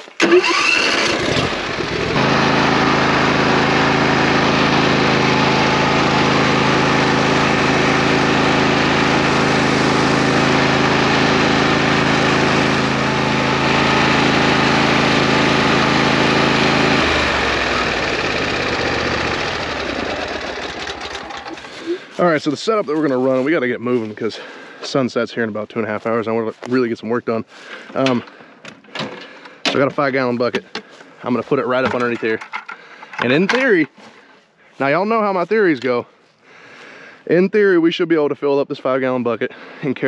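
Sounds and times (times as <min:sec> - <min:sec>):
small engine running: 0:00.2 - 0:22.2.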